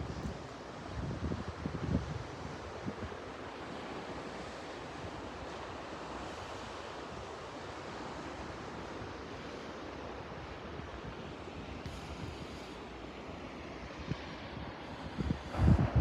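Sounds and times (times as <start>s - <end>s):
wind buffeting microphone: 0.0s - 3.2s, 14.0s - 16.0s
sea surf washing: 0.0s - 16.0s.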